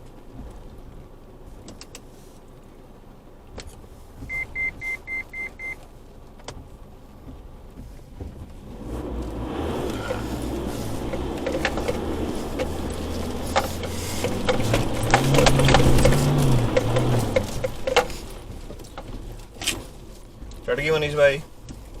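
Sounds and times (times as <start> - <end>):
high electronic beeps: 4.3 - 5.8.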